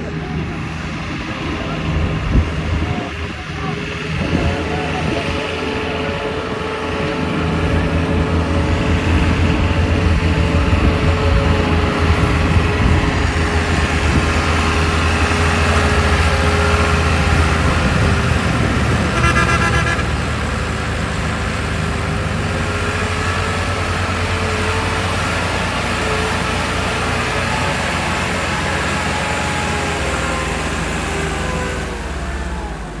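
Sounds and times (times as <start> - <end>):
tractor diesel engine running: 0.0 - 33.0
horn sounding: 3.6 - 20.7.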